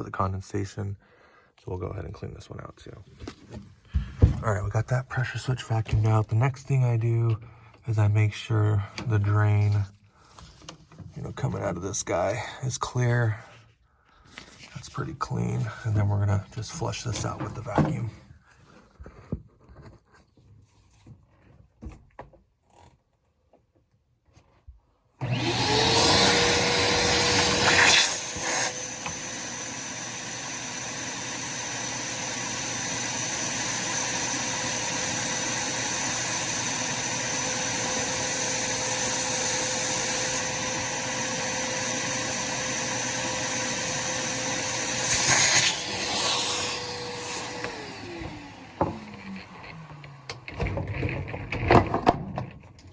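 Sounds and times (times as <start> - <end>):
vacuum suction air rush: 25.2 - 49.9
vacuum cleaner motor whine: 25.2 - 51.2.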